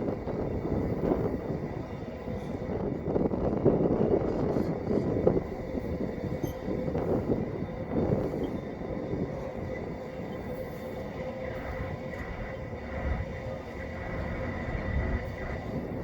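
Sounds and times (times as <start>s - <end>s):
faint wheel squeal: 6.3s - 6.7s.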